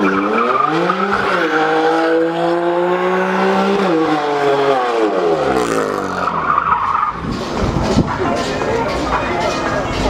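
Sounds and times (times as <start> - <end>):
car engine revving high: 0.0 - 6.6.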